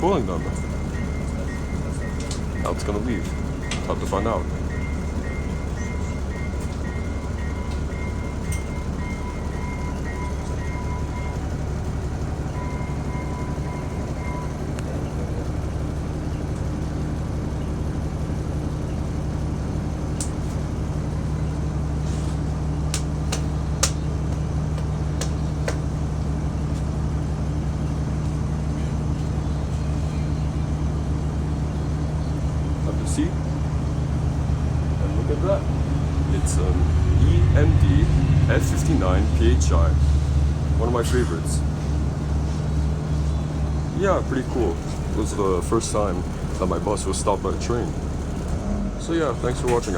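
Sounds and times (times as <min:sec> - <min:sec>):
bus engine idling: 0:00.0 - 0:49.9
sharp clicks: 0:22.9 - 0:25.8.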